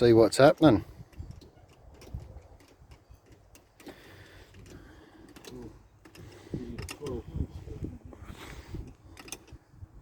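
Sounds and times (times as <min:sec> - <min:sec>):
hand tools clicking and tapping: 0:00.5 - 0:07.2, 0:08.9 - 0:09.6.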